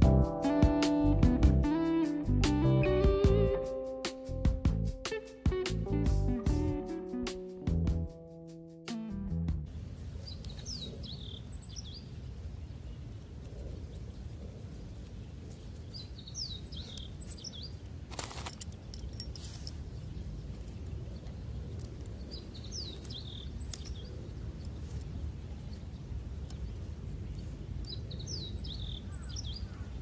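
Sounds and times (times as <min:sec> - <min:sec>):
low rumble: 0:00.0 - 0:00.4, 0:01.0 - 0:03.7, 0:04.3 - 0:05.0, 0:05.7 - 0:06.8, 0:07.7 - 0:08.3, 0:09.1 - 0:09.9.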